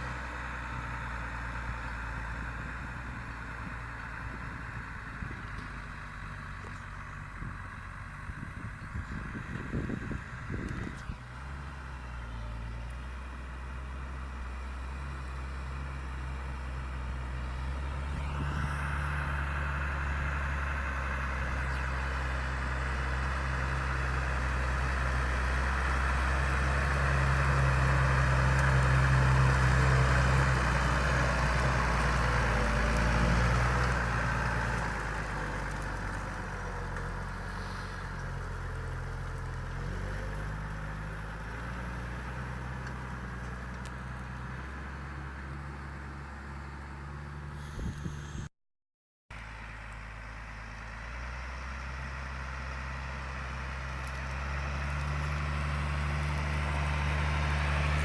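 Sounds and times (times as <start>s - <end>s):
tractor diesel engine running: 0.0s - 48.5s, 49.4s - 58.0s.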